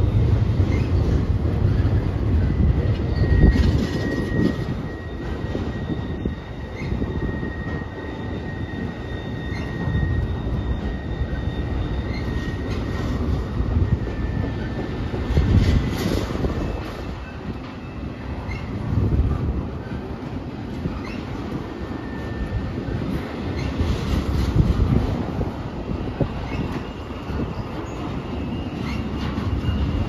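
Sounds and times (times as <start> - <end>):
high-pitched wheel squeal: 0.0 - 20.1, 20.8 - 25.0, 26.2 - 30.0
train wheels rumbling on rail: 0.0 - 30.0.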